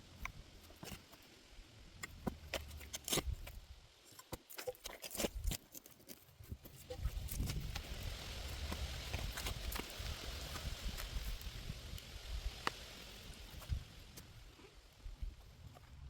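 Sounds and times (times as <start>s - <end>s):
potatoes and soil knocking: 2.0s - 11.6s.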